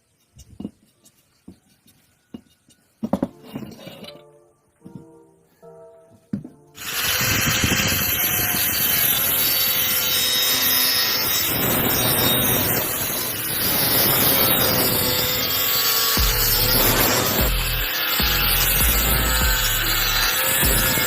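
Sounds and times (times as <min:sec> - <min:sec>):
angle grinder cutting steel: 0:06.8 - 0:21.0.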